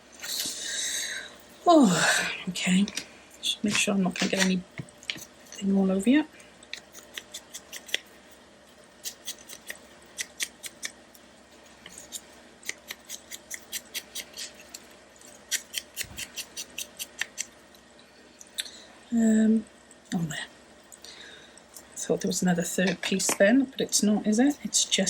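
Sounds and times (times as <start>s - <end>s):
scissors snipping paper: 6.7s - 8.0s, 9.0s - 10.9s, 11.9s - 14.8s, 15.5s - 17.5s.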